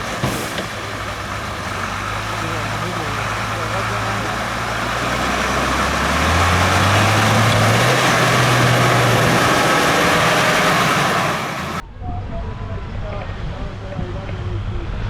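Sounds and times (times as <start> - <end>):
truck engine revving: 0.0 - 11.8.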